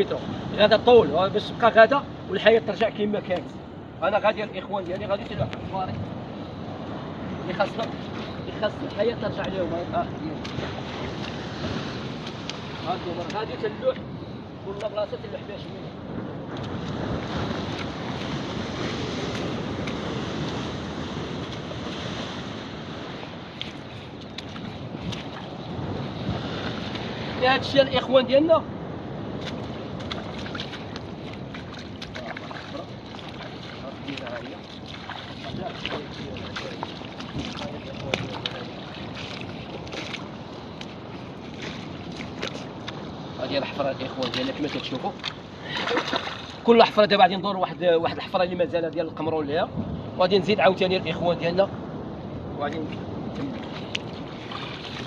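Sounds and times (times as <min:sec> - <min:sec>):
wind on microphone: 0:00.0 - 0:47.5, 0:48.1 - 0:55.0
sea surf: 0:00.0 - 0:55.0
seawater washing among rocks: 0:16.6 - 0:28.6, 0:29.2 - 0:47.4, 0:52.8 - 0:55.0.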